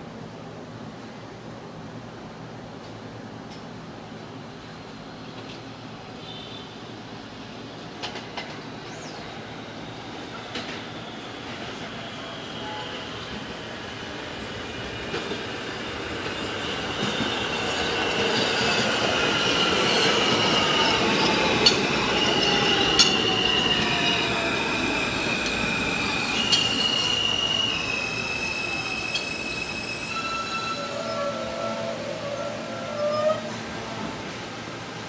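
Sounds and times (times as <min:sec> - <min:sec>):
train wheels squealing: 0:07.7 - 0:34.4.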